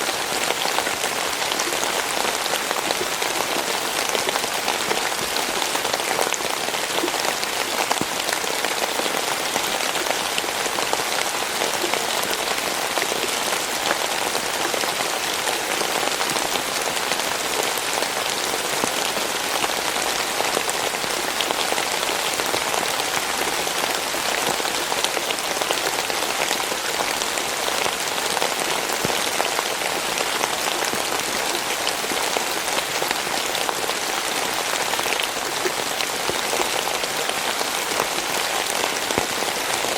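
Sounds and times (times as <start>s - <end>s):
steady rain pattering: 0.0s - 39.9s.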